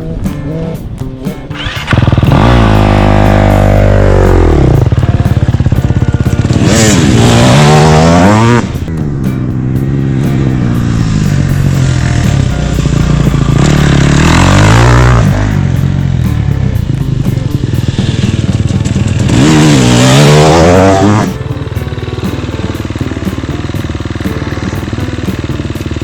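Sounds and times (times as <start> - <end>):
dirt bike engine revving: 1.5 - 8.9, 9.5 - 26.0.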